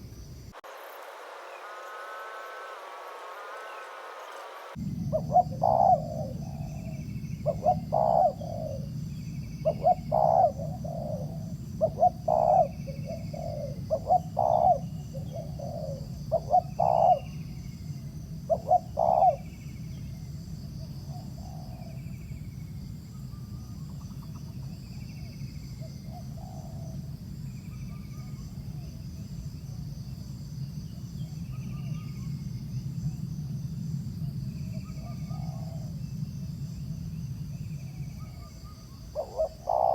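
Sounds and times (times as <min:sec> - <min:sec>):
high insect buzz: 0:00.0 - 0:06.7
doves cooing: 0:00.6 - 0:09.0, 0:09.6 - 0:17.4, 0:18.5 - 0:19.4, 0:35.0 - 0:36.0, 0:38.3 - 0:39.9.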